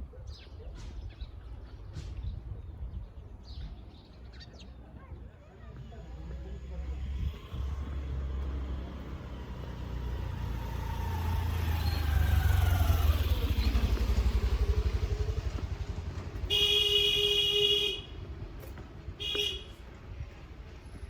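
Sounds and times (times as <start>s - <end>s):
vehicle engine passing by: 5.7s - 16.7s
car horn: 16.4s - 18.2s, 19.2s - 19.8s.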